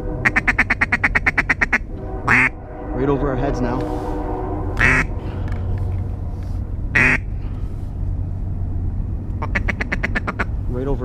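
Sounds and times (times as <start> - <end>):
low rumble: 0.0 - 11.0
duck quacks: 0.2 - 2.5, 4.8 - 5.1, 7.0 - 7.3, 9.4 - 10.5.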